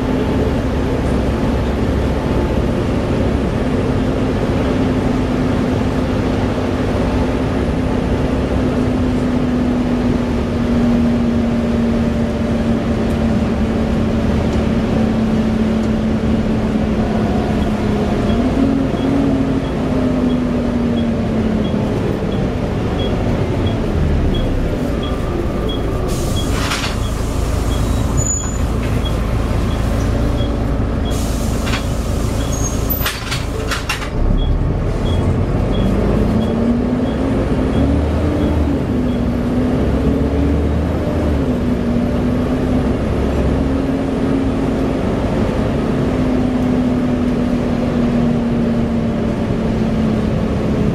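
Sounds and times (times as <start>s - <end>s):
bus engine drone and whine: 0.0s - 50.9s
short air hisses: 31.1s - 32.8s.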